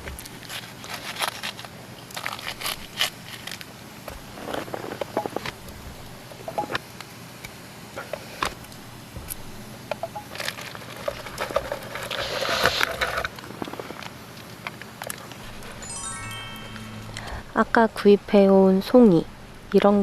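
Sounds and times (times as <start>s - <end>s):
packaging crinkling: 0.2s - 5.4s, 10.3s - 14.1s.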